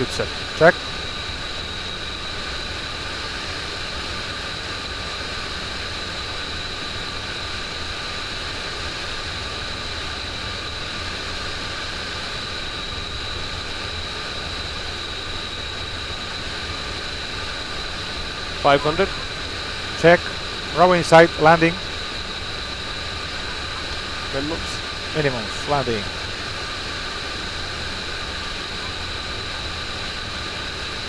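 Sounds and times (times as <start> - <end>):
airplane cockpit rushing hiss: 18.6 - 19.1, 20.0 - 26.2
high steady whine: 20.0 - 26.2.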